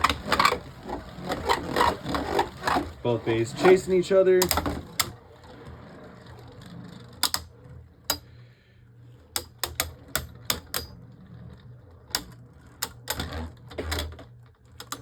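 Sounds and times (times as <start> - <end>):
spinning tops whirring: 0.0 - 8.4.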